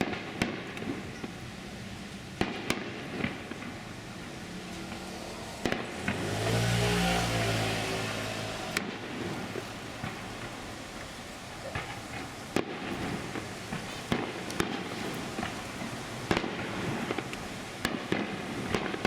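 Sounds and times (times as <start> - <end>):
fireworks bangs: 0.0 - 19.0
vehicle passing by: 3.8 - 11.4.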